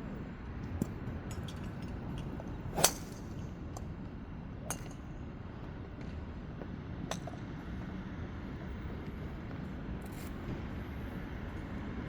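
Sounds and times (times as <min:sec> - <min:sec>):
low background hum: 0:00.0 - 0:12.0
golf club striking ball: 0:02.8 - 0:03.2.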